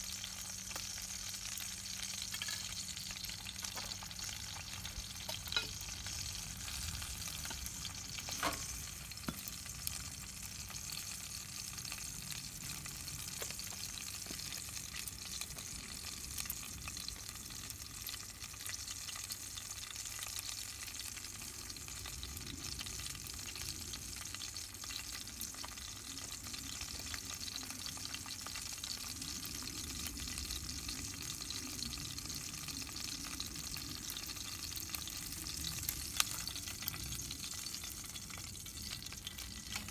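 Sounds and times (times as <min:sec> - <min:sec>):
wood fire crackling: 0:00.0 - 0:16.6.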